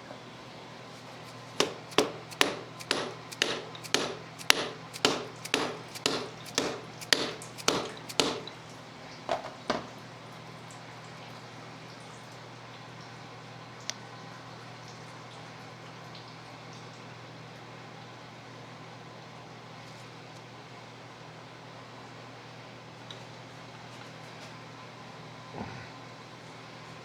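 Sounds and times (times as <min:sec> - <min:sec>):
tool tapping on metal part: 0:01.6 - 0:08.6.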